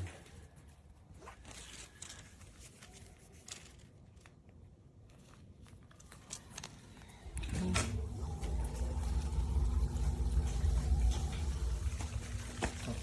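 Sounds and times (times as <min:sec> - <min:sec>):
handling clicks and rustles: 0:00.0 - 0:07.1.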